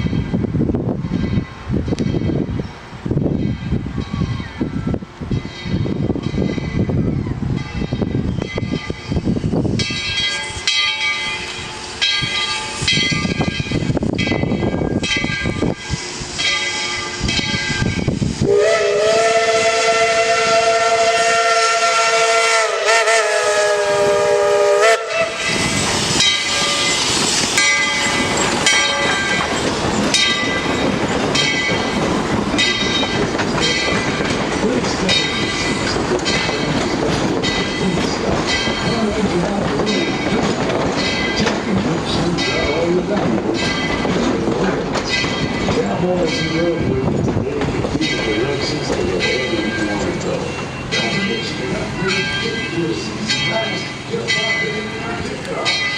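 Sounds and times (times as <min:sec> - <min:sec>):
train clattering: 0:00.0 - 0:55.9
steam whistle chord: 0:18.5 - 0:25.8.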